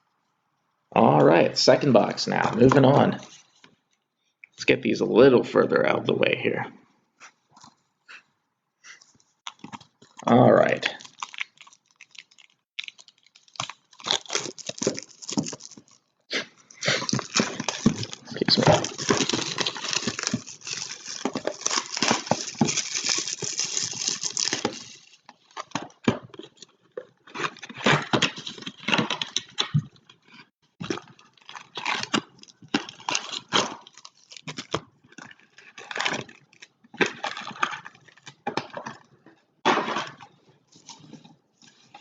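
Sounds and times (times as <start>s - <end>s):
card wrapping tearing and crinkling: 9.5s - 29.8s, 30.8s - 38.9s.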